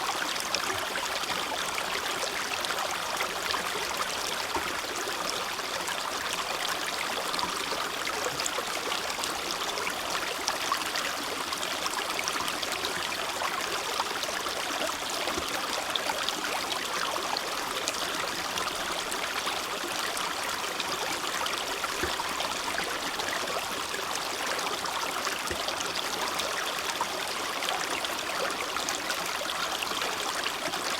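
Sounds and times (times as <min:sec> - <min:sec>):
creek babbling over stones: 0:00.0 - 0:30.9.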